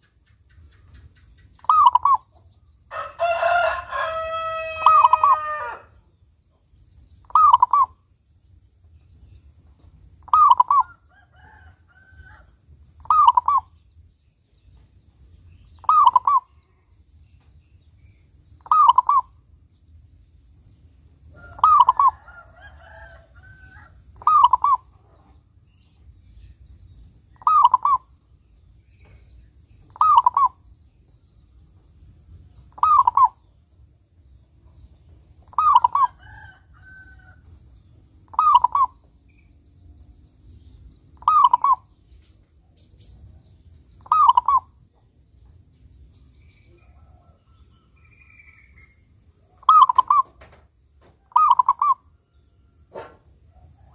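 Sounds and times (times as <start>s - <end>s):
faint chirps: 0.0s - 53.9s
dove cooing: 1.6s - 2.3s, 4.5s - 5.9s, 7.3s - 7.9s, 10.3s - 11.6s, 13.0s - 13.7s, 15.8s - 16.5s, 18.6s - 19.3s, 21.4s - 25.2s, 27.4s - 28.1s, 29.9s - 30.6s, 32.8s - 33.4s, 35.5s - 37.0s, 38.3s - 39.0s, 41.2s - 41.9s, 44.0s - 44.7s, 49.5s - 50.5s, 51.2s - 52.0s.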